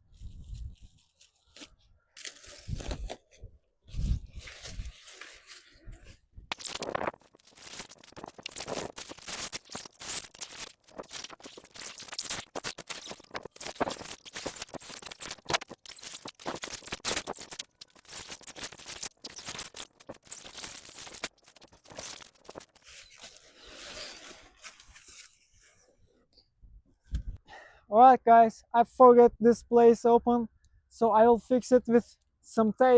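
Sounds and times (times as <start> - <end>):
rustling and scraping materials: 0.0 - 26.0
quick clicks: 6.5 - 22.8.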